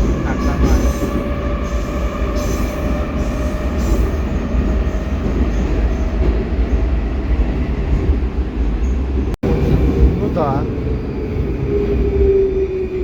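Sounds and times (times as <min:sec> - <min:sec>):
train wheels rumbling in tunnel: 0:00.0 - 0:13.0.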